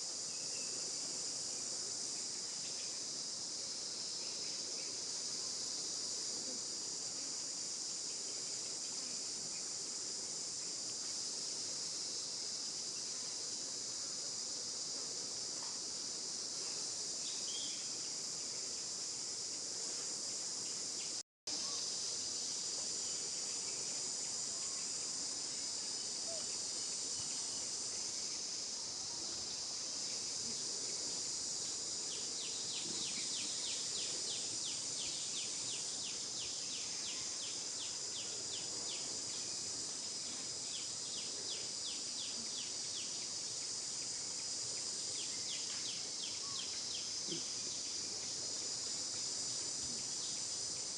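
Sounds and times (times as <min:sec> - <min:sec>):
high-pitched insect chorus: 0:00.0 - 0:50.9.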